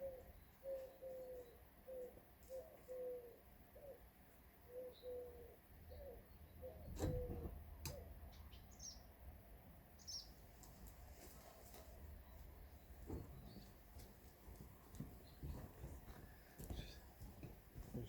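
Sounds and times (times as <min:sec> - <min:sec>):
dove cooing: 0:00.0 - 0:04.1, 0:04.7 - 0:08.2
high bird chirps: 0:10.0 - 0:10.4.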